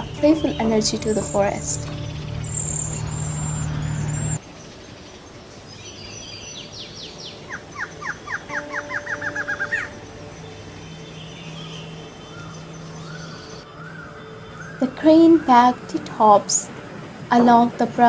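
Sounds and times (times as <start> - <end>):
antshrike song: 0.0 - 3.6
soft bird chirps: 0.0 - 4.4.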